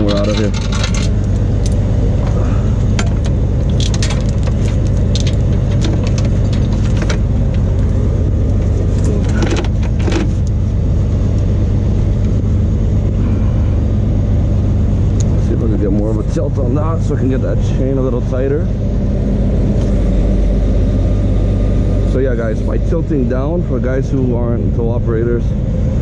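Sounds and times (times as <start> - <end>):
tow chains clinking and rattling: 0.0 - 10.7
diesel engine idling: 0.0 - 26.0.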